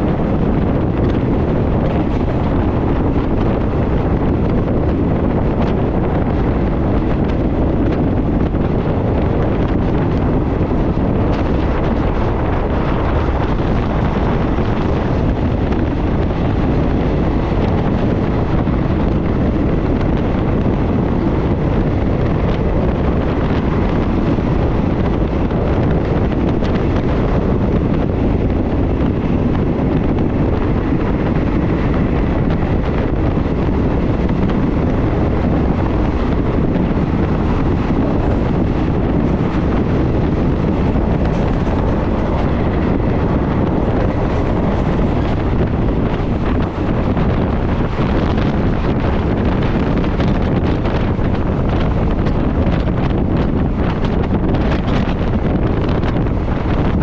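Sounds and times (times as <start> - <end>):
train running noise: 0.0 - 57.0
wind rushing on microphone: 0.0 - 57.0.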